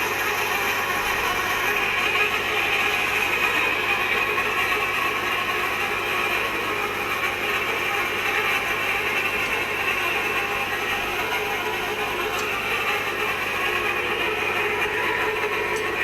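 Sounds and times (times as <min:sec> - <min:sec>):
machinery hum: 0:00.0 - 0:16.0.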